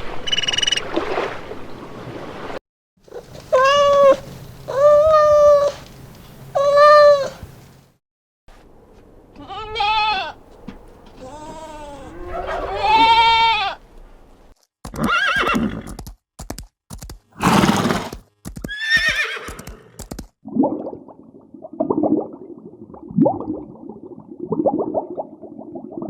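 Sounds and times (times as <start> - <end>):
animal cries bending in pitch: 11.2 - 13.8.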